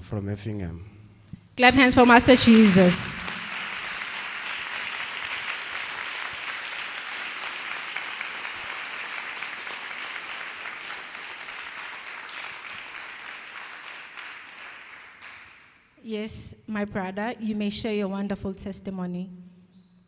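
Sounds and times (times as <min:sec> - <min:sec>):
crowd applauding: 0:01.6 - 0:15.8.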